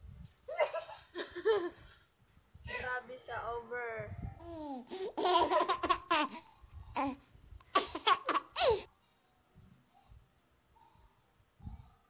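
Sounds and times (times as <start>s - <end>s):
young women laughing: 0.5s - 1.9s, 5.2s - 6.4s.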